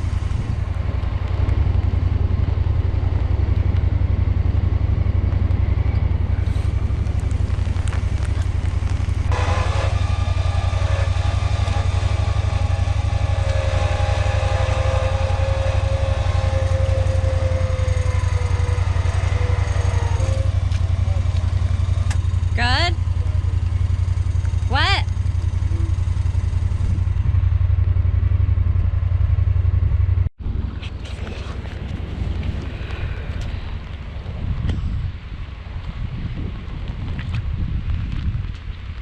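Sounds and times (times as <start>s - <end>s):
small engine running: 0.0s - 29.2s
high-pitched whine: 2.1s - 27.2s.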